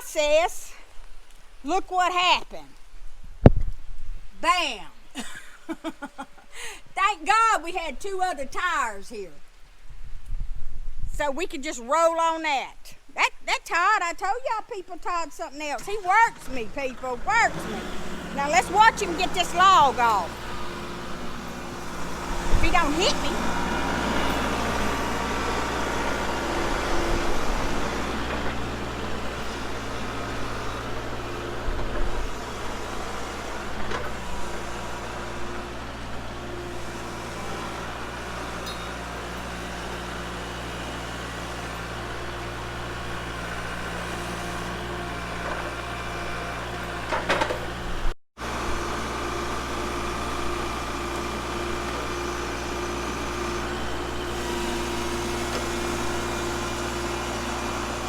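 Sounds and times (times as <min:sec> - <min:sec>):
tractor diesel engine running: 0:15.1 - 0:58.0.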